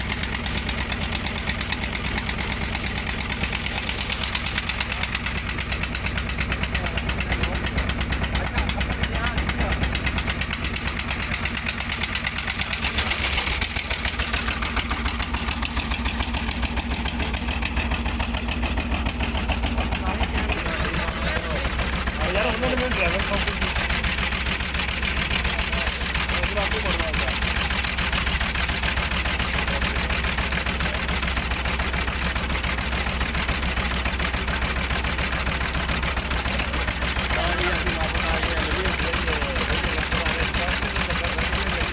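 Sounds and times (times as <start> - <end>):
engine chugging at low speed: 0.0 - 41.9.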